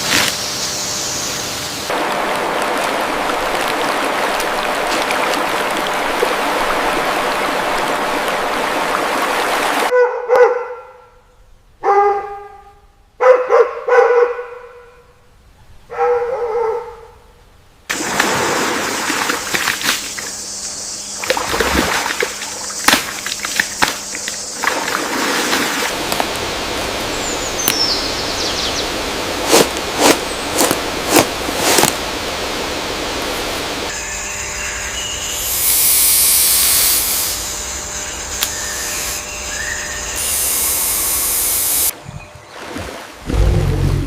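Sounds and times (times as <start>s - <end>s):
dog-like animal barking: 9.9s - 11.1s, 11.8s - 14.8s, 15.9s - 17.2s
steady ambient hiss: 17.3s - 42.0s.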